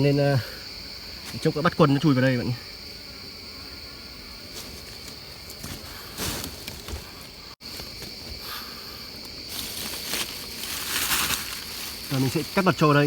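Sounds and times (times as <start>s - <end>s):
forest insects chirring: 0.0s - 13.0s
rustling handling noises: 9.5s - 12.6s.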